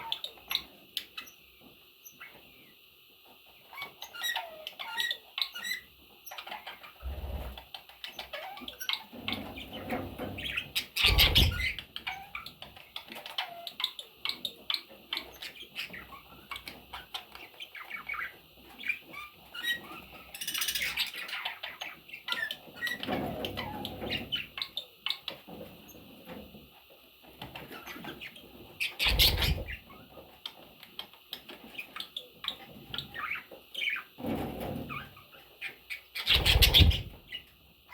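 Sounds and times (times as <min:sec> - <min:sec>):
budgerigars chirping: 0:03.7 - 0:25.4, 0:27.6 - 0:30.0, 0:34.9 - 0:37.5.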